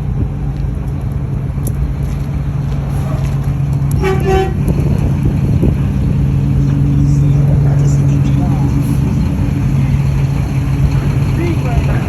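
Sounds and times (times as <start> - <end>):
car engine drone: 0.0 - 12.0
car horn toot: 3.9 - 4.8.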